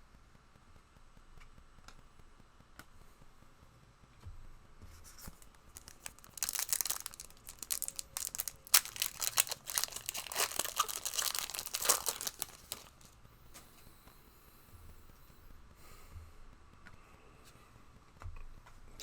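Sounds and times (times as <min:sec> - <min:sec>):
wrappers tearing and crinkling: 0:05.2 - 0:13.1.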